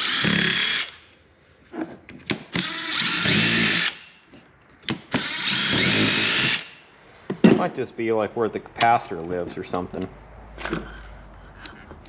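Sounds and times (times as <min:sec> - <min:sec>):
power drill motor whine: 0:00.0 - 0:01.0, 0:02.6 - 0:04.2, 0:05.1 - 0:06.8.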